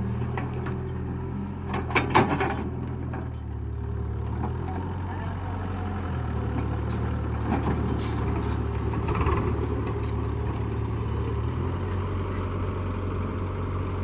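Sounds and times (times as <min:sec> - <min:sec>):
tractor diesel engine running: 0:00.0 - 0:14.0
knocks and rattles: 0:01.7 - 0:03.5.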